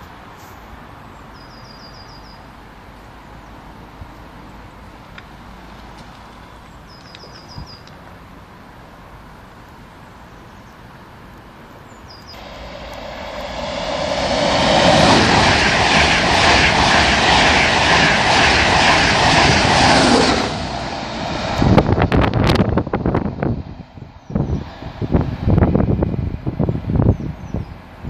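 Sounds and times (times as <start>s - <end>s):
bird chirping: 1.3s - 2.5s, 6.3s - 7.9s, 11.9s - 12.4s
express train rushing past: 12.3s - 27.0s.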